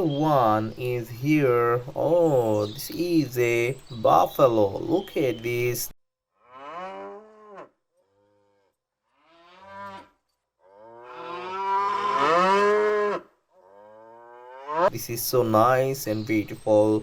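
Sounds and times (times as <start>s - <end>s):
buffalo mooing: 6.4s - 14.9s.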